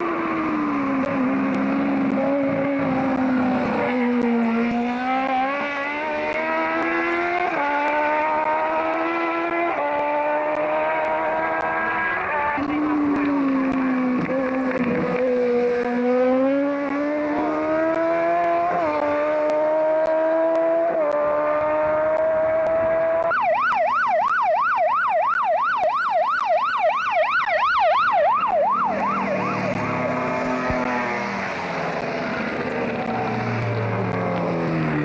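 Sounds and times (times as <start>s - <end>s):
race car engine accelerating: 0.0s - 23.3s, 28.7s - 35.0s
siren yelping: 7.4s - 14.5s, 23.0s - 31.2s.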